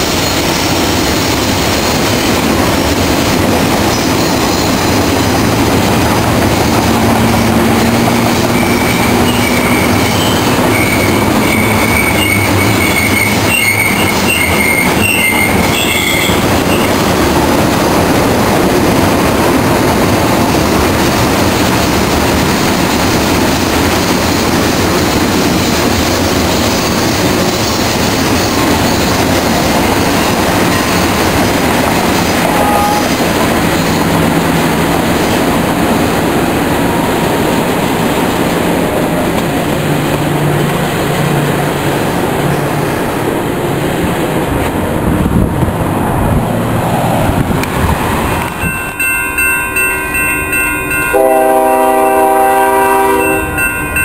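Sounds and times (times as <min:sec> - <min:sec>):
freight train wheels rumbling on rail: 0:00.0 - 0:54.0
high-pitched wheel squeals: 0:07.7 - 0:17.0.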